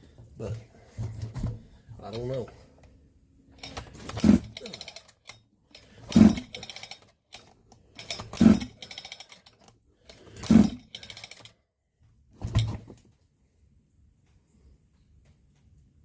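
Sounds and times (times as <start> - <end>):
chainsaw recoil starter pulls: 3.6 - 11.6.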